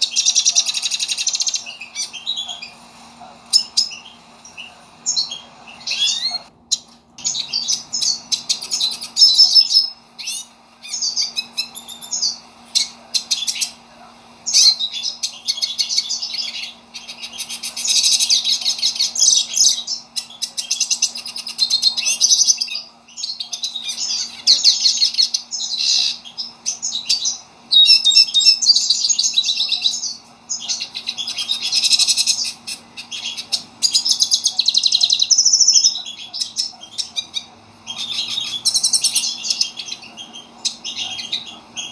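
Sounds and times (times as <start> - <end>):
faint low hum: 0.0 - 41.9
finch twittering song: 0.0 - 41.9.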